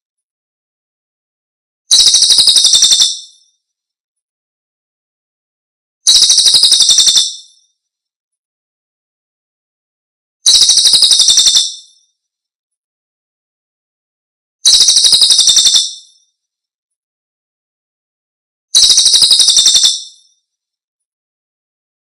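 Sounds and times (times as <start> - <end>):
high-pitched bird trill: 1.9 - 3.5, 6.1 - 7.6, 10.5 - 12.0, 14.6 - 16.3, 18.8 - 20.4.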